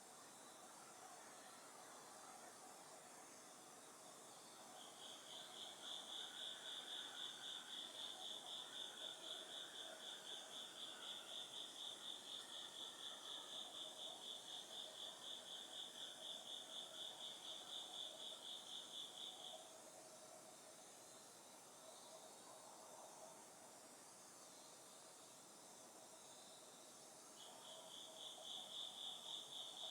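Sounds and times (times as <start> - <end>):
faint insect calls: 0.0 - 29.9.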